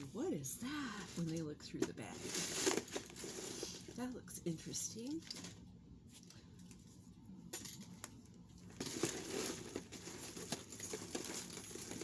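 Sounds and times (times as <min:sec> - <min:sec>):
plastic bag crinkling: 0:00.7 - 0:04.2, 0:08.8 - 0:12.0.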